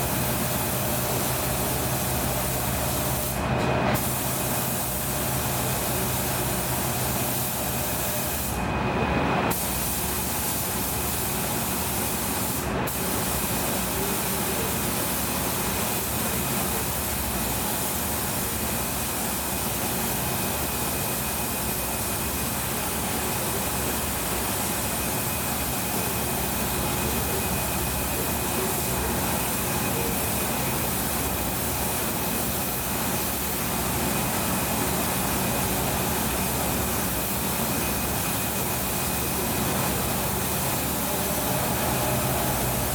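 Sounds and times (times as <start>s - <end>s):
spray gun hissing: 4.0s - 5.2s, 9.5s - 19.8s, 21.6s - 42.9s.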